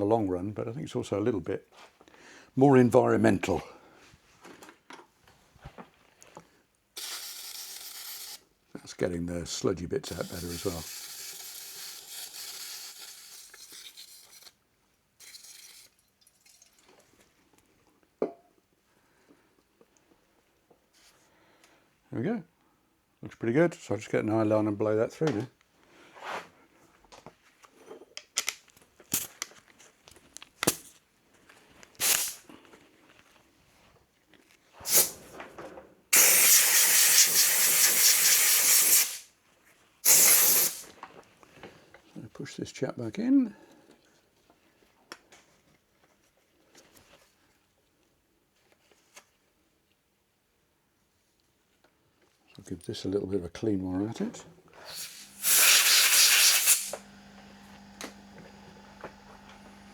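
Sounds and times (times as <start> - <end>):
spray bottle hissing: 7.0 - 8.4, 10.1 - 14.1, 32.0 - 32.4, 34.9 - 35.2, 36.2 - 39.3, 40.0 - 40.9, 54.8 - 57.0
compressed air blasts: 32.0 - 32.4, 34.9 - 35.2, 36.1 - 39.3, 40.0 - 40.9, 54.8 - 57.0.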